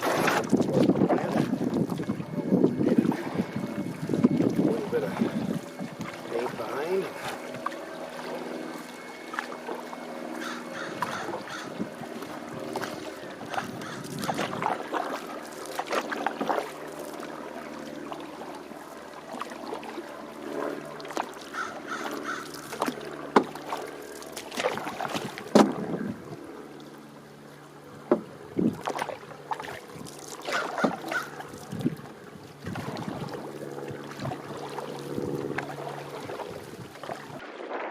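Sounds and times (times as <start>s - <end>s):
paddle strokes splashing water: 0.0s - 37.9s
birds cawing: 10.2s - 12.2s, 13.1s - 14.6s, 21.4s - 23.0s, 30.4s - 31.4s
wood knocking against canoe hull: 23.3s - 23.7s, 25.1s - 25.9s, 28.0s - 29.0s, 30.5s - 31.3s.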